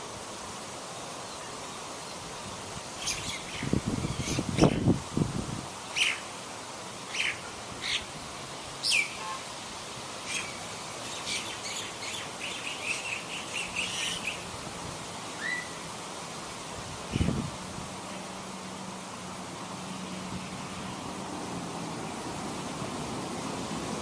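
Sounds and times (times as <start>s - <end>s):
small birds chirping: 3.0s - 5.0s, 5.9s - 6.3s, 7.0s - 8.1s, 8.8s - 9.4s, 10.2s - 14.5s.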